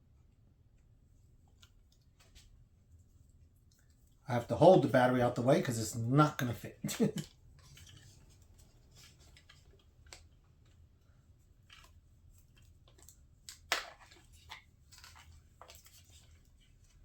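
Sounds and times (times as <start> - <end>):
light clicks and rustles: 6.9 - 17.0.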